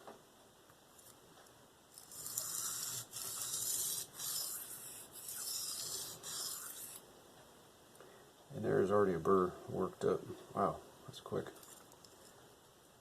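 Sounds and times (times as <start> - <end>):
knife scraping on sharpening stone: 2.0 - 7.0.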